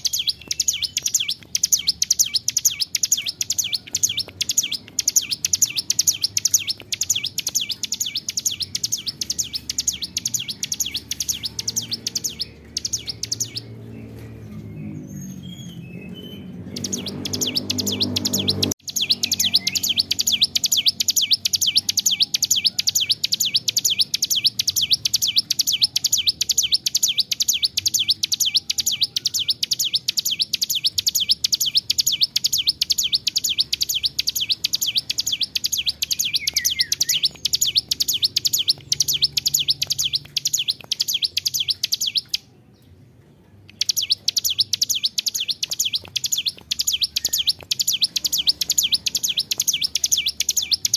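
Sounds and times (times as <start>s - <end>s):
bird singing high chipping notes: 0.0s - 50.9s.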